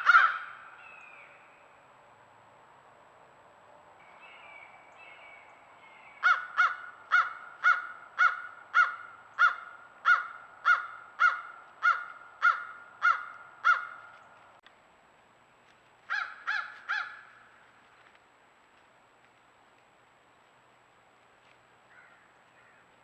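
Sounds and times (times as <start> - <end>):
bird calling loudly: 0.0 - 1.3, 6.0 - 14.4.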